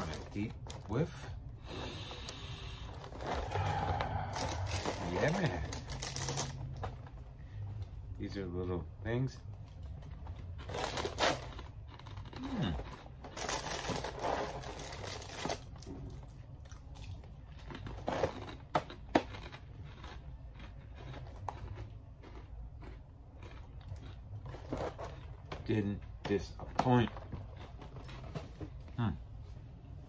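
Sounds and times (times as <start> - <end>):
cereal being chewed and crunched: 2.9 - 7.2, 9.6 - 28.3
plastic bag crinkling: 2.9 - 7.2, 10.4 - 15.9.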